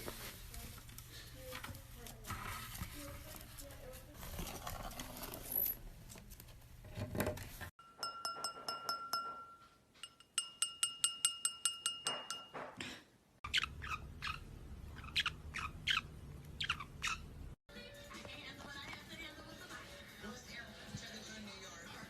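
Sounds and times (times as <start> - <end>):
small bell rung rapidly: 7.8 - 12.5.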